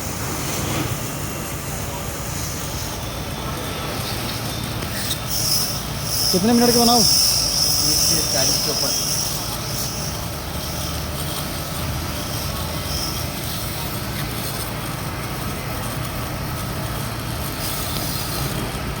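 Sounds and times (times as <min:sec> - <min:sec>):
pressure washer motor hum: 0:00.0 - 0:19.0.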